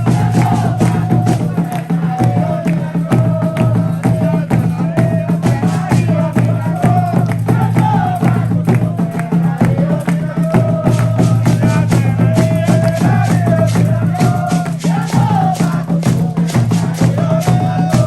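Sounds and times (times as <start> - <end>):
percussion and rattles beat: 0.0 - 18.0
sung chant: 0.0 - 18.0.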